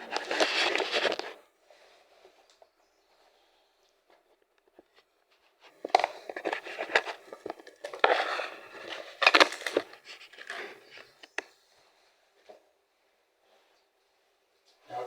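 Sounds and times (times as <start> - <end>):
crinkling handling noise: 0.0 - 2.7, 4.1 - 11.6.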